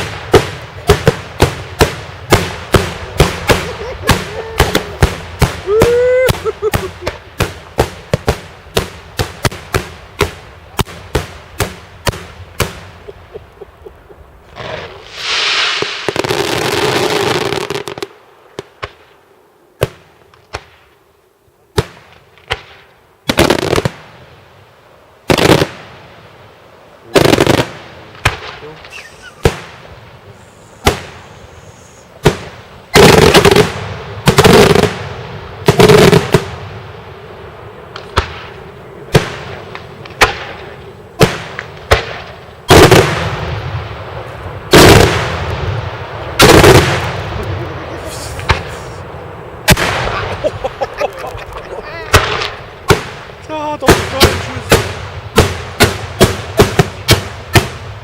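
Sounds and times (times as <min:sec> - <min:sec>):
heavy firework booms: 0:00.0 - 0:13.0, 0:27.1 - 0:31.5, 0:32.2 - 0:51.0, 0:52.0 - 0:58.0
firework bangs: 0:00.0 - 0:19.2, 0:19.8 - 0:21.0, 0:21.7 - 0:24.5, 0:25.2 - 0:26.4, 0:27.1 - 0:58.0
crackling firework salvos: 0:00.0 - 0:58.0
hissing crackle: 0:00.0 - 0:58.0.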